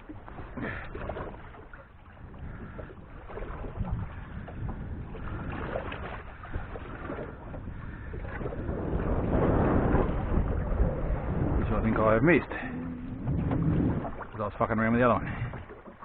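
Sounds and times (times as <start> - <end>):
water sounds: 0.0 - 16.0
wind buffeting microphone: 0.0 - 16.0.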